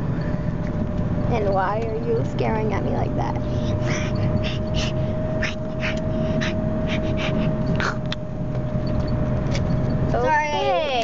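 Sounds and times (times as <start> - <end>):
car cabin rumble: 0.0 - 11.0
person gasping: 3.7 - 8.0.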